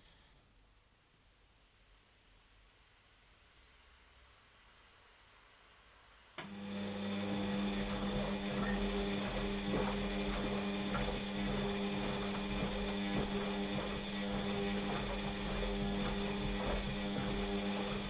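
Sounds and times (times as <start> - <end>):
washing machine motor hum: 6.4 - 18.0.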